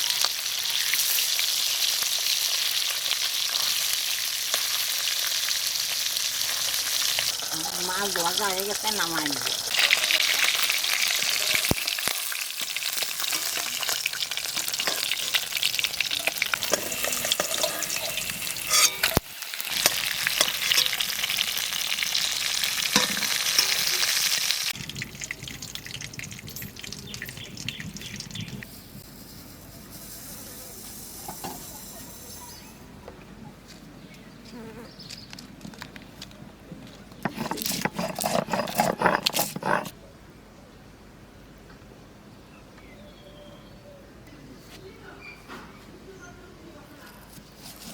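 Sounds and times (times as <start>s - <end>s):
fish sizzling in oil: 0.0s - 29.1s
stirring and scraping in pan: 12.9s - 21.5s, 37.2s - 40.0s, 47.2s - 47.9s.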